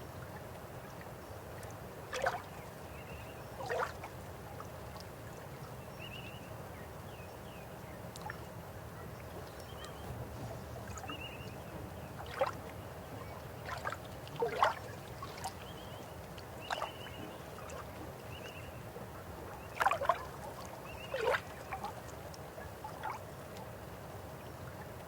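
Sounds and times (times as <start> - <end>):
water gurgles and splashes: 2.1 - 2.5, 3.6 - 4.2, 12.1 - 12.8, 13.5 - 18.2, 19.0 - 23.3
river running: 8.6 - 25.0.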